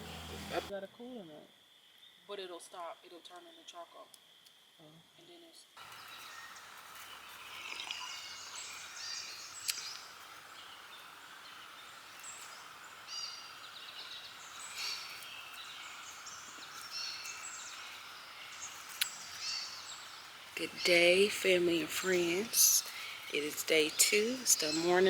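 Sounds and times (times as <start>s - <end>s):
faint background hum: 0.0s - 25.0s
songbirds chirping: 5.8s - 25.0s.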